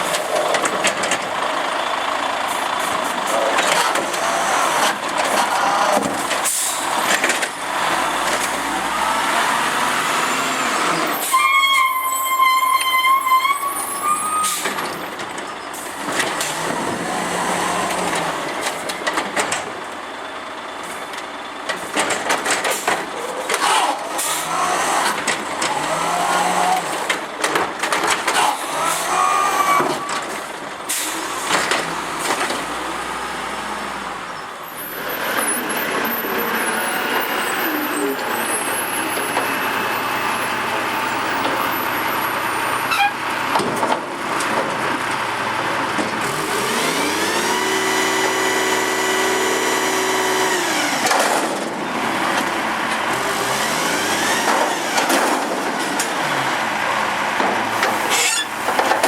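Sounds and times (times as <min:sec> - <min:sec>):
garbage truck engine running: 0:00.0 - 0:11.2, 0:13.8 - 0:59.0
knocks and clatter: 0:21.1 - 0:23.6, 0:27.0 - 0:28.4, 0:43.5 - 0:45.2, 0:57.4 - 0:59.0.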